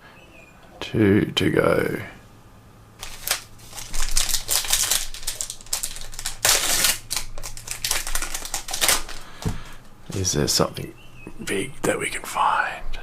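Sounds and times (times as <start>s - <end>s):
plastic wrapper crinkling: 3.0s - 10.3s
cards rustling: 3.0s - 10.4s.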